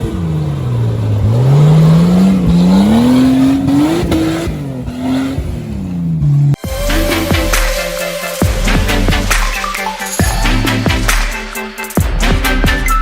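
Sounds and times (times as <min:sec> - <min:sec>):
vehicle engine revving: 0:00.0 - 0:07.6.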